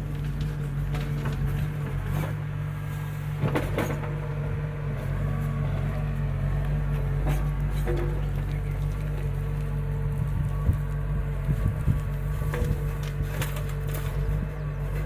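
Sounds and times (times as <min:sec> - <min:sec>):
diesel engine running: 0:00.0 - 0:15.0
machine knocks and clanks: 0:03.4 - 0:04.4, 0:07.0 - 0:09.3.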